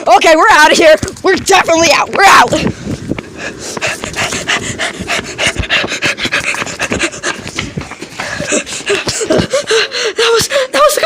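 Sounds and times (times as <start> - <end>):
person panting hard: 2.6 - 10.8.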